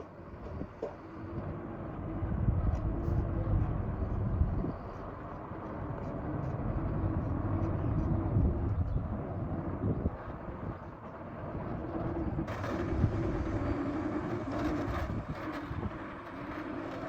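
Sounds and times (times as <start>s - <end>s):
excavator diesel engine rumbling: 0.0s - 17.0s.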